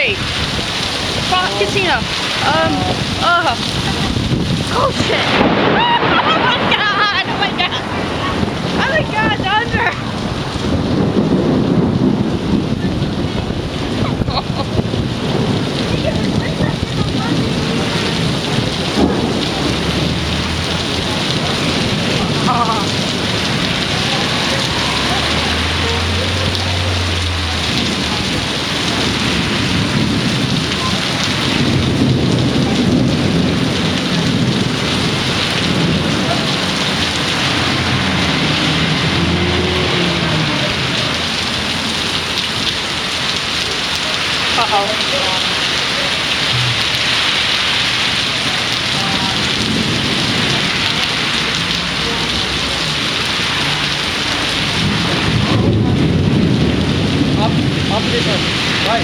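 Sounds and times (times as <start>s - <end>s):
low thunder rumble: 0.0s - 44.8s, 46.4s - 59.0s
heavy rain pouring: 0.0s - 59.0s.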